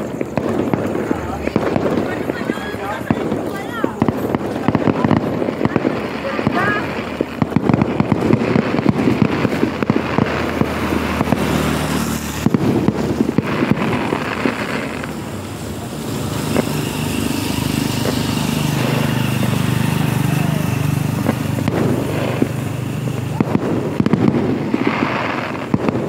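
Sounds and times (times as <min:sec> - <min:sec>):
fireworks bangs and crackles: 0:00.0 - 0:26.0
small engine running: 0:08.0 - 0:25.6.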